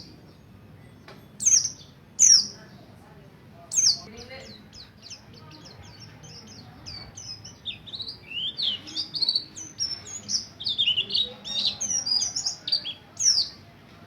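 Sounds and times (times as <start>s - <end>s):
bird singing fast high chirps: 1.4s - 2.6s, 3.7s - 13.6s.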